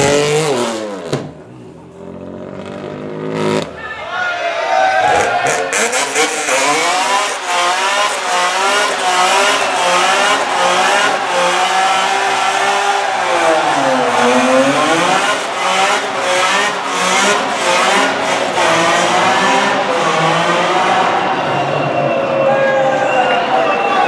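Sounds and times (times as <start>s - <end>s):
car engine revving: 0.0s - 1.3s, 5.0s - 22.2s.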